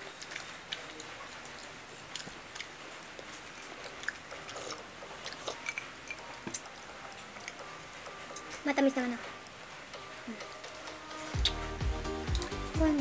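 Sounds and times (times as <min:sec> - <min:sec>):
people chewing: 0:00.0 - 0:07.7, 0:11.2 - 0:12.7
faint steady hiss: 0:00.0 - 0:13.0.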